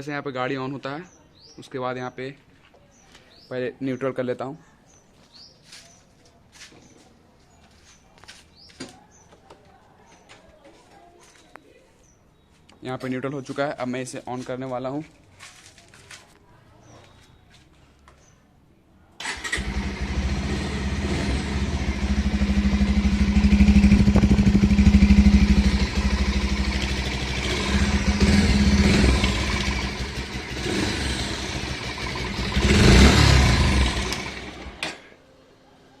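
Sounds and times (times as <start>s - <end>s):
motorcycle engine starting and running: 19.2s - 35.1s.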